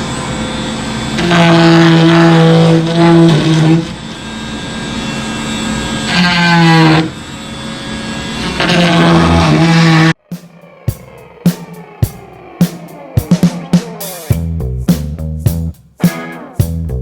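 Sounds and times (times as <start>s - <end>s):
power tool humming whine: 0.0s - 14.3s
music: 10.3s - 17.0s.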